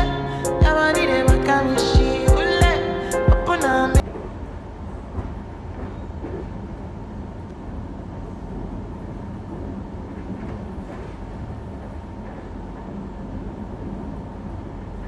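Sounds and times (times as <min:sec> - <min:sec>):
train running: 0:04.0 - 0:15.0.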